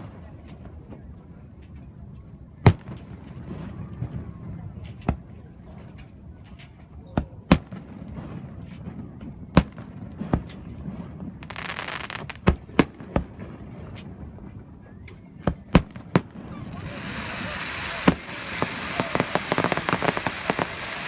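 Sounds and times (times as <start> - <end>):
fireworks bursting bangs: 7.2 - 14.8, 15.4 - 21.0
firework hissing rush: 16.7 - 21.0.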